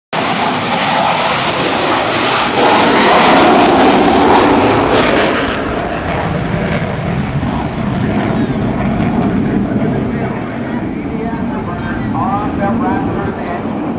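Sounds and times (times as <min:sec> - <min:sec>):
airplane engine passing: 0:00.2 - 0:13.9.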